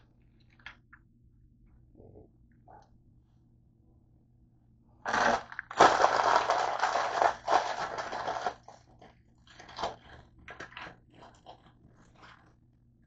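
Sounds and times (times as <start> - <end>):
person chewing crunchy food: 5.1 - 12.6.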